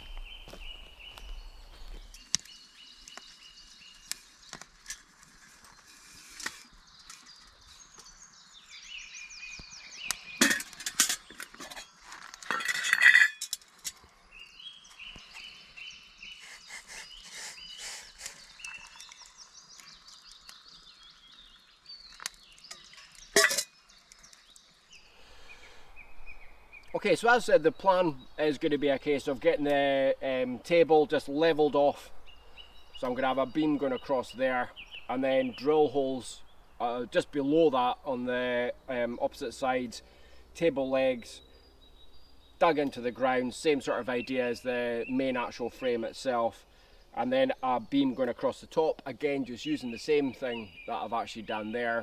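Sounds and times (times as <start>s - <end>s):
birds singing: 0.0s - 4.7s, 5.6s - 12.5s, 13.2s - 52.0s
sharp clinks and clatters: 10.4s - 14.0s.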